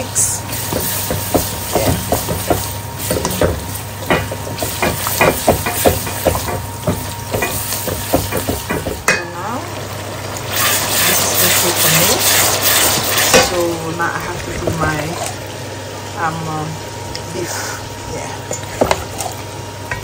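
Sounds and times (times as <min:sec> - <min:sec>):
food frying in hot oil: 0:00.0 - 0:20.0
spatula scraping pot: 0:00.2 - 0:09.2, 0:10.5 - 0:13.6.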